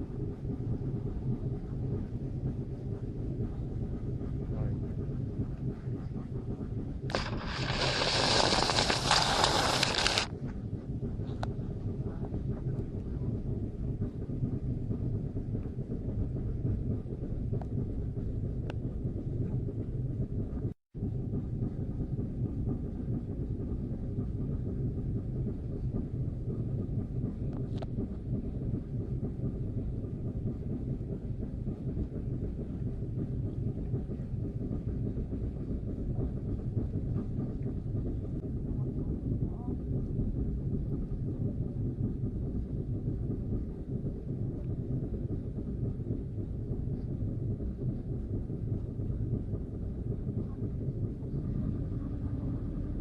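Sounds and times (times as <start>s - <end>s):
boat motor rumble: 0.3s - 14.6s
boat motor running: 7.1s - 10.3s.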